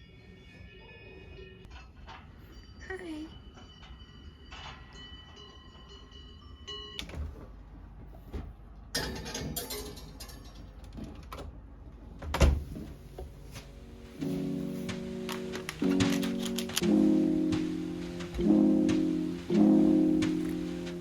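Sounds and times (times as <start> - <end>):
music: 0.0 - 1.8, 13.3 - 21.0
knocks and clatter: 7.0 - 11.6, 12.2 - 21.0.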